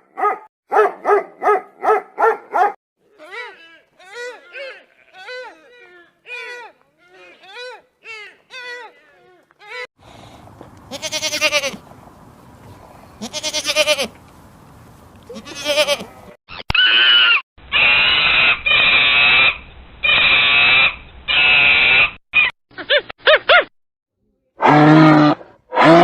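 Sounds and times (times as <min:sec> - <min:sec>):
quavering bleat-like animal calls: 0:04.0 - 0:09.0, 0:10.9 - 0:11.8, 0:13.2 - 0:14.1, 0:15.3 - 0:17.3
long harsh animal calls: 0:16.6 - 0:22.1.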